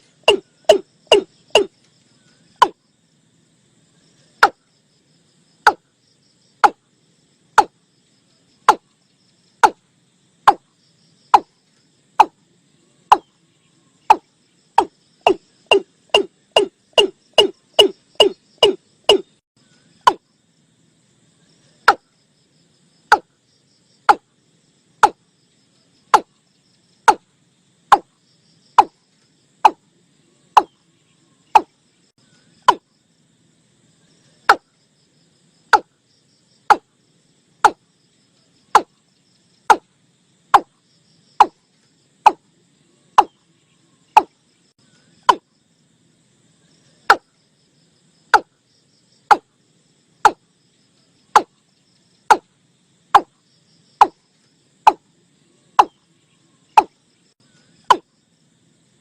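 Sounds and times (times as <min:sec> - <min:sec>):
recorded bird calls: 0:00.0 - 0:03.0, 0:03.7 - 0:20.5, 0:21.3 - 0:33.0, 0:40.5 - 0:45.5, 0:53.1 - 0:58.2.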